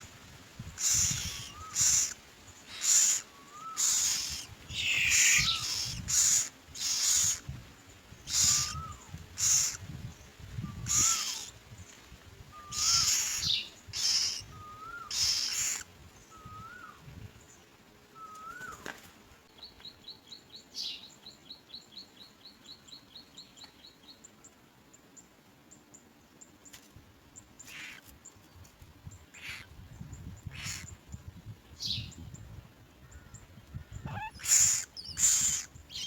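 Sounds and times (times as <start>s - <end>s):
nestlings raspy begging calls: 0.8s - 7.5s, 8.2s - 9.8s, 10.8s - 11.6s, 12.6s - 15.9s, 27.6s - 28.1s, 29.3s - 29.7s, 30.4s - 31.0s, 34.0s - 36.0s.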